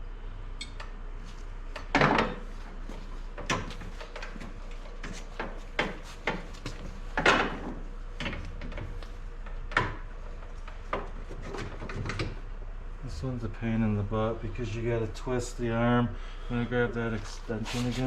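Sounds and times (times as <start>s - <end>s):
metal parts knocking and clunking: 3.4s - 12.4s.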